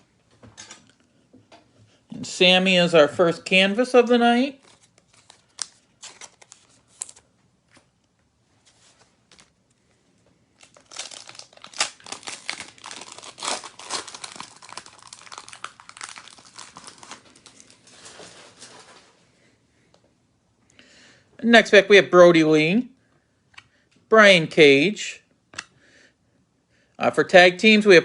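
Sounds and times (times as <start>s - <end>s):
wrapper tearing and crinkling: 4.6s - 7.2s, 10.6s - 19.1s.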